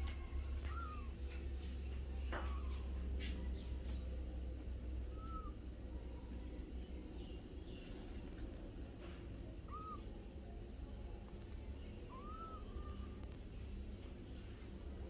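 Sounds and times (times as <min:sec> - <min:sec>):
low steady hum: 0:00.0 - 0:15.0
cat mewing: 0:09.6 - 0:10.2, 0:12.1 - 0:13.1.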